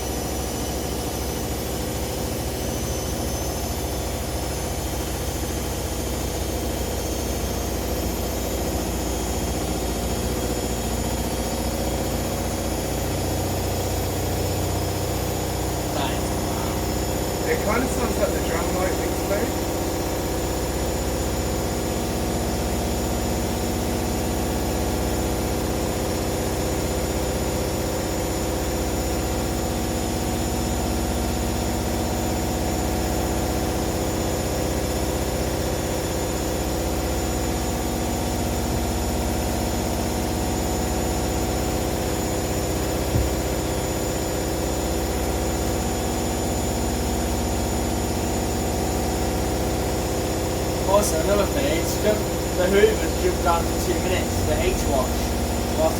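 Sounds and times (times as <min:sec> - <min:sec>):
washing machines spinning: 0:00.0 - 0:55.9
single knock: 0:43.1 - 0:43.3.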